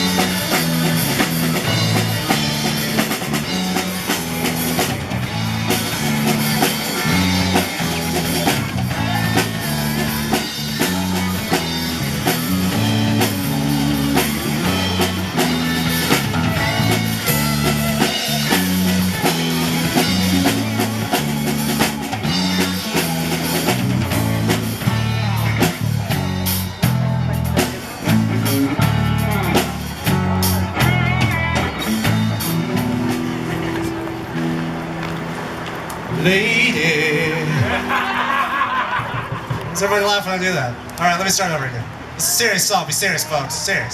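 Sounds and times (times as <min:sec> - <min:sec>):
stepping bass line: 0:00.0 - 0:34.9
rock band playing: 0:00.0 - 0:42.4.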